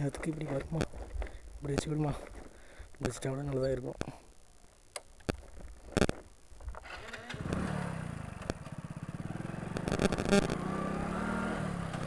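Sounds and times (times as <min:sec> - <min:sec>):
sharp clicks: 0:04.9 - 0:06.8, 0:09.7 - 0:10.7
motorcycle engine running: 0:06.8 - 0:12.0.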